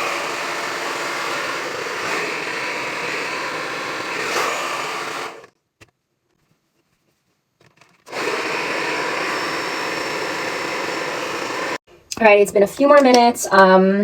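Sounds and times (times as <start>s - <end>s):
hair dryer blowing: 0.0s - 5.5s, 8.1s - 11.8s.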